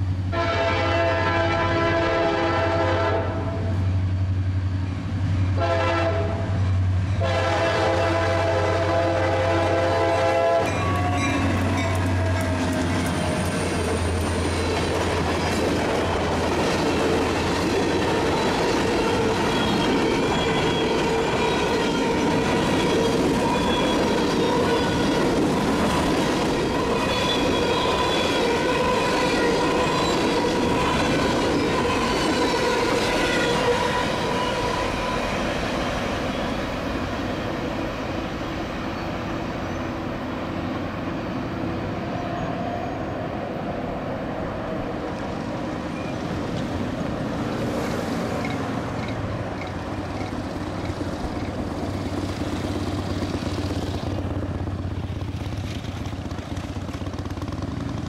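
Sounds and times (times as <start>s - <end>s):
diesel locomotive engine running: 0.0s - 58.0s
train wheels on rails: 0.0s - 58.0s
locomotive horn blasts: 0.3s - 3.7s, 5.5s - 6.6s, 7.2s - 12.6s, 18.1s - 25.4s, 26.7s - 35.4s.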